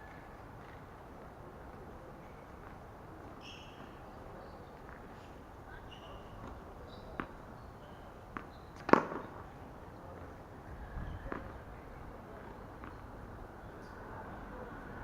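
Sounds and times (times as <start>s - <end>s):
tennis ball bouncing on court: 8.3s - 9.3s
rackets hitting tennis ball: 8.3s - 9.4s.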